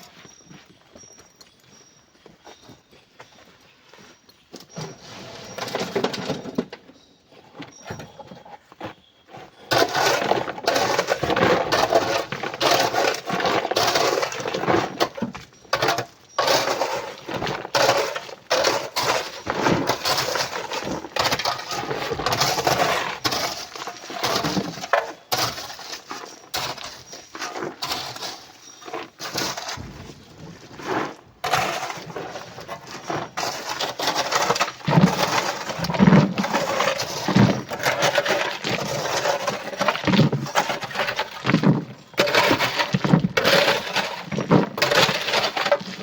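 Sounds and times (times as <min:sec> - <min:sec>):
rocks clattering and crunching: 0:09.6 - 0:46.0.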